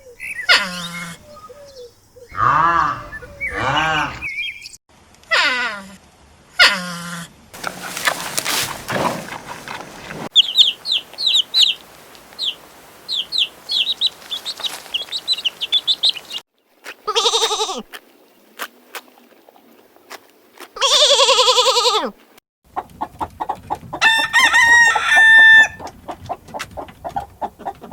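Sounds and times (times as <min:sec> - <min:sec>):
rooster crowing: 0:24.0 - 0:25.8.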